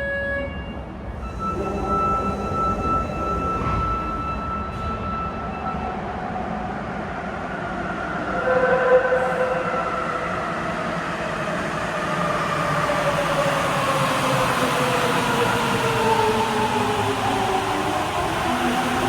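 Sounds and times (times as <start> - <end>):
steady high tone: 0.0 - 6.4
subway train rumbling: 0.0 - 19.0.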